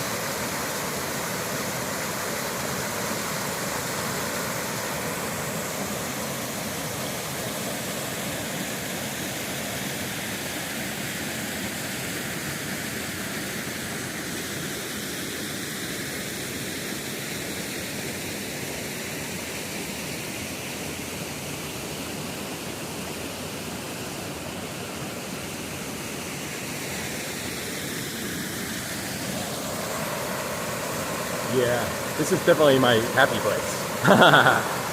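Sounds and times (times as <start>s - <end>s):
waterfall roaring: 23.1s - 34.9s.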